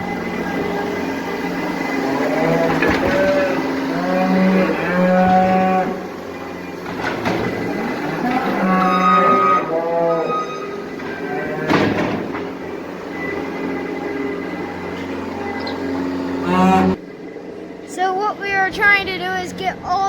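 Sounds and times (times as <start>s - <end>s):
cattle mooing: 0.0s - 12.1s, 15.3s - 17.0s
engine droning: 0.0s - 20.0s.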